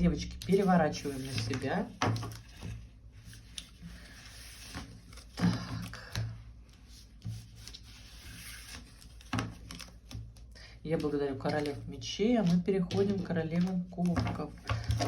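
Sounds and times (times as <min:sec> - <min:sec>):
cards rubbing: 0:06.8 - 0:10.2.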